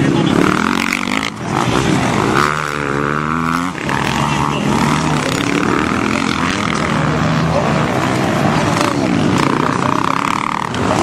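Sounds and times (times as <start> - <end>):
motorcycle engines revving: 0.0 - 11.0.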